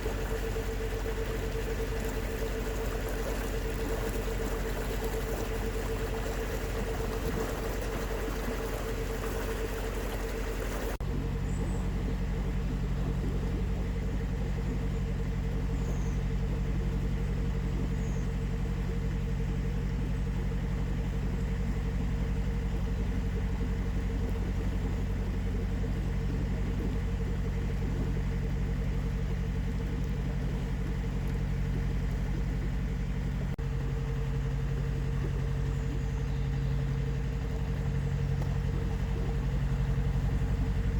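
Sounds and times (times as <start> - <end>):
hissy water wash: 0.0 - 14.9, 22.1 - 40.9
boat engine running steadily: 0.0 - 40.9.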